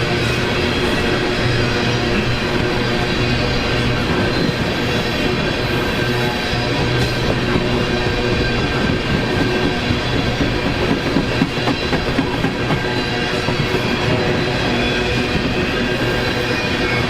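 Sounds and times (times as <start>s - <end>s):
train cars clacking over rail joints: 0.0s - 17.0s.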